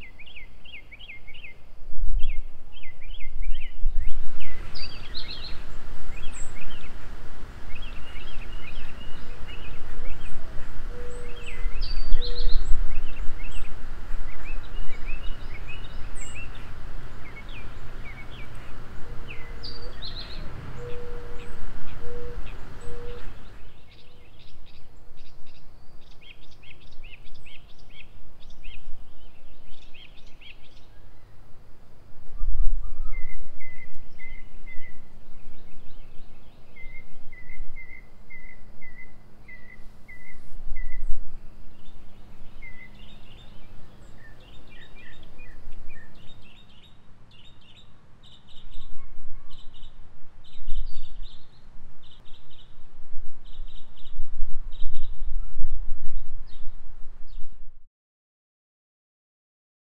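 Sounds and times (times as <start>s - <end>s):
songbirds singing: 0.0s - 57.6s
outdoor ambience: 0.0s - 57.9s
low rumbles: 3.8s - 23.8s.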